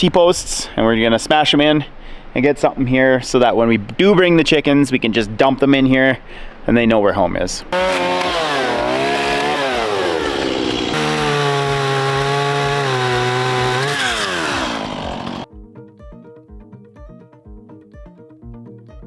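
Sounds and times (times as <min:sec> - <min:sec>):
chainsaw cutting: 0:07.8 - 0:15.5.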